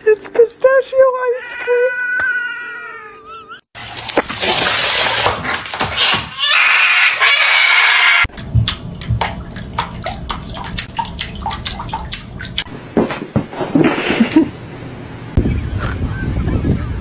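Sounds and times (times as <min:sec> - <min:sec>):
short sharp splashes or drips: 0:03.8 - 0:06.1, 0:08.6 - 0:12.7
water splashing: 0:03.8 - 0:06.3, 0:08.6 - 0:13.8.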